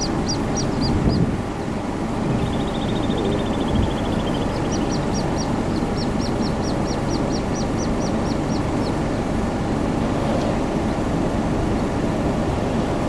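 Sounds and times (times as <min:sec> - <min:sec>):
high repeated bird peeps: 0:00.0 - 0:01.2, 0:02.3 - 0:09.5
low background rumble: 0:00.0 - 0:13.0.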